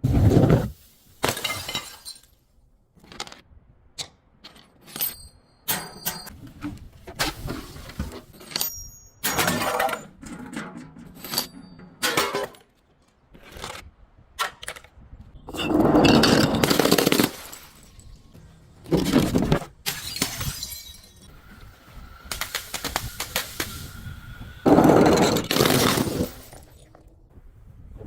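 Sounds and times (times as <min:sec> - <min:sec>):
glass bottles breaking: 0:00.7 - 0:02.4, 0:08.4 - 0:10.1, 0:15.6 - 0:18.3, 0:19.0 - 0:21.4, 0:24.7 - 0:27.0.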